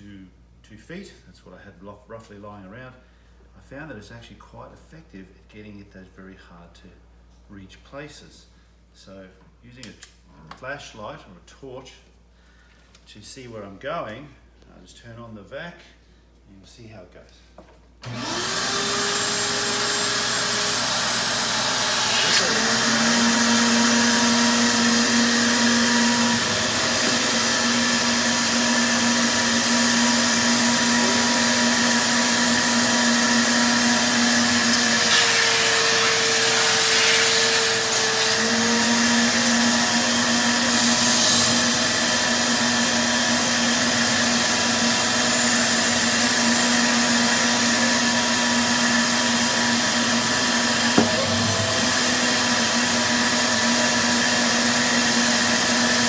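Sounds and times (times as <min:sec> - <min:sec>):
wet dry vacuum running: 0:18.0 - 0:56.0.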